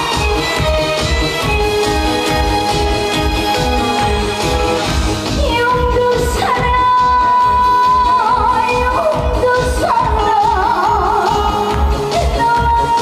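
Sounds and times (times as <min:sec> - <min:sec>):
amplified backing band: 0:00.0 - 0:13.0
woman singing with vibrato: 0:05.3 - 0:13.0.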